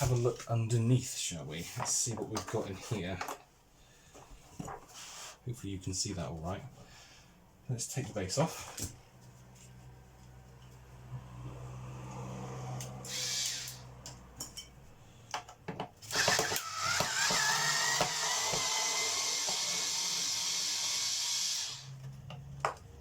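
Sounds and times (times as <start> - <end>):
cordless drill whirring: 13.0 - 13.9, 16.1 - 22.0.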